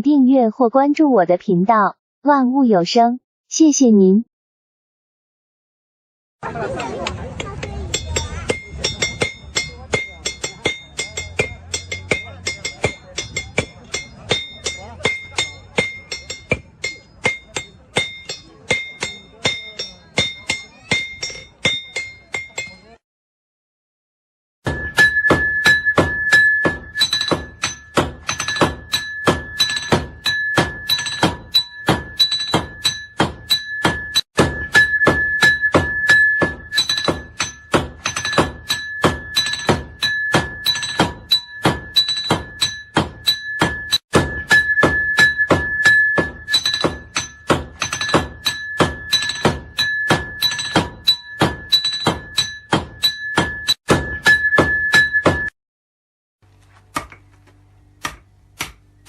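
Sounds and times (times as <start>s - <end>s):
hammer striking iron on anvil: 7.0s - 23.0s, 24.7s - 55.5s, 56.9s - 57.3s, 58.0s - 58.8s
anvil ringing: 7.4s - 23.0s, 24.7s - 55.5s.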